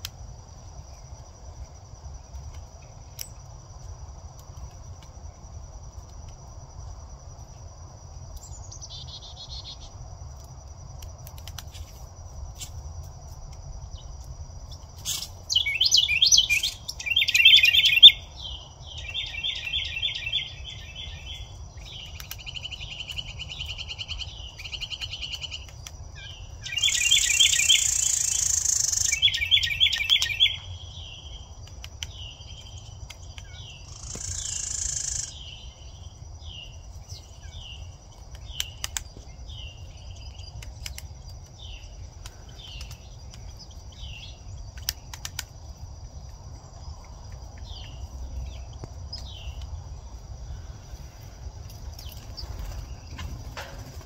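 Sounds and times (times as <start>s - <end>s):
high insect trill: 0.0s - 54.0s
bird chirping rapidly: 15.1s - 31.4s, 33.5s - 35.8s.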